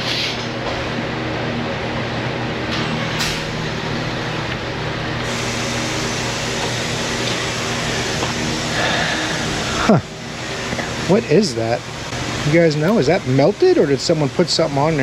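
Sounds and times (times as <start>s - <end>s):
machine humming: 0.0s - 15.0s
hiss: 5.3s - 7.4s.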